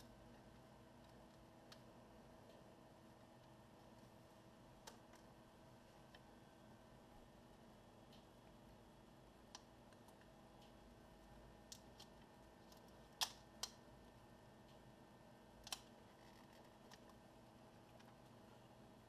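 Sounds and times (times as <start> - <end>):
plastic laptop parts clicking: 11.7 - 13.8, 15.6 - 17.2.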